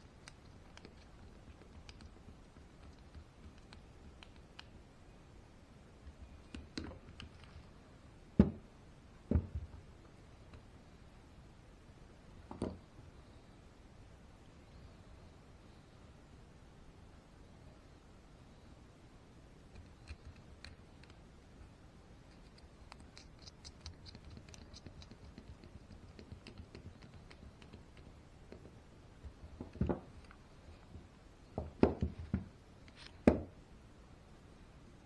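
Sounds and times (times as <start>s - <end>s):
light clicks and scratches: 0.0s - 4.8s, 6.0s - 7.8s, 19.7s - 31.1s.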